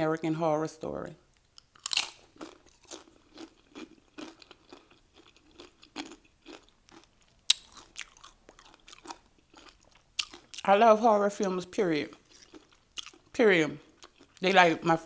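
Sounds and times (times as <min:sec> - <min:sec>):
person chewing crunchy chips: 0:01.5 - 0:10.8, 0:11.8 - 0:15.0.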